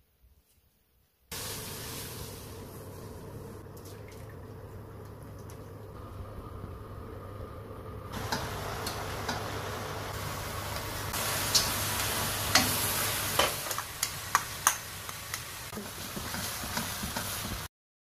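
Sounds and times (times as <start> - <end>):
food sizzling in a wok: 1.3 - 3.7, 8.1 - 17.7.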